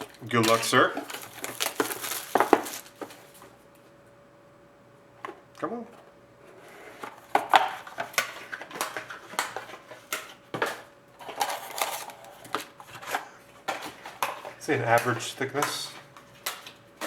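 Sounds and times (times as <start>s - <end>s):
cardboard and wrapper crinkling: 0.0s - 3.4s, 11.2s - 16.8s.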